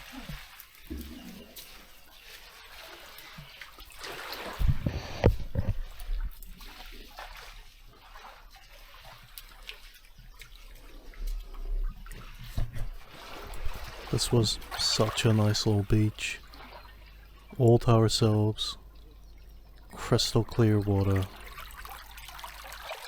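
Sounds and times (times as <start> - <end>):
seawater splashing and trickling: 0.0 - 23.0.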